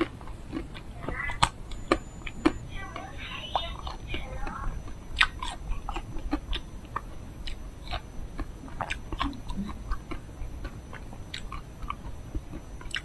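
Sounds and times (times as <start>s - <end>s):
chewing with small crunches: 0.0s - 13.0s
wet mouth clicks: 4.8s - 13.0s.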